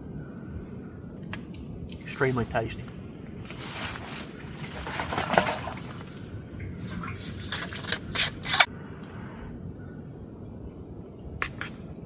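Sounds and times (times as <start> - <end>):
spork scraping in metal tin: 7.2 - 8.7.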